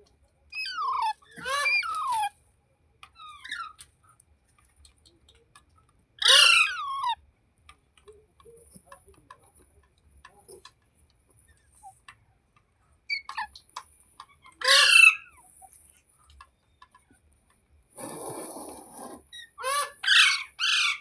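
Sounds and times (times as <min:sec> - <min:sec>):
soft clicks and chirps: 0:00.0 - 0:06.0, 0:07.2 - 0:14.6, 0:15.3 - 0:17.8
parrot squawking harshly: 0:00.6 - 0:02.3, 0:06.2 - 0:07.2, 0:14.6 - 0:15.3, 0:19.3 - 0:21.0.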